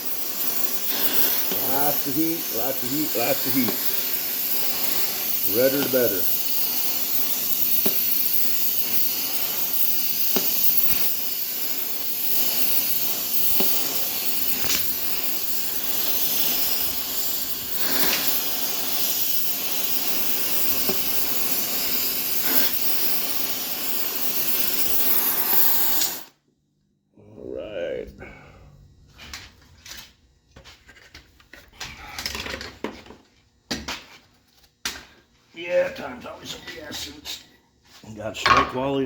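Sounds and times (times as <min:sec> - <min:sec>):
gas torch flame hissing: 0:00.0 - 0:26.4.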